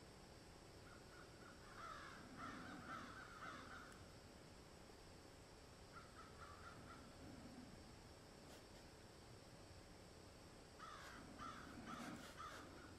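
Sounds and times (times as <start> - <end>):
faint bird calls: 0.8 - 4.1, 5.8 - 7.8, 10.8 - 12.9.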